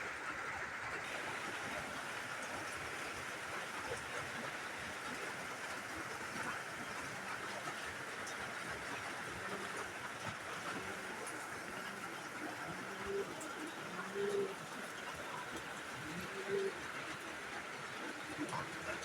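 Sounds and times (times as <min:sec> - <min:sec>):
pigeons cooing: 0:09.0 - 0:19.0.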